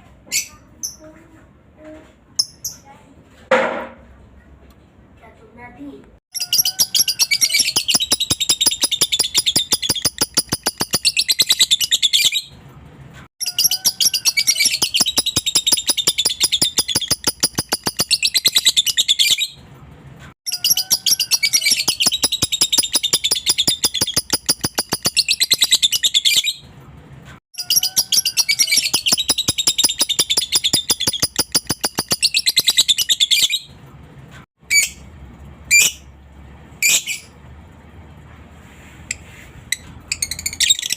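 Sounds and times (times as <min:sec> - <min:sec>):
lovebird rapid high chattering: 0:06.3 - 0:12.1, 0:13.4 - 0:19.1, 0:20.5 - 0:26.2, 0:27.6 - 0:33.3
bird chirps: 0:06.3 - 0:12.6, 0:13.4 - 0:19.6, 0:20.5 - 0:26.6, 0:27.6 - 0:33.8.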